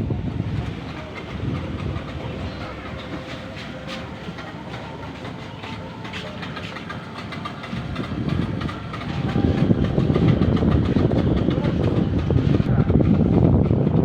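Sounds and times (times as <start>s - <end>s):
outboard motors running: 0.0s - 14.0s.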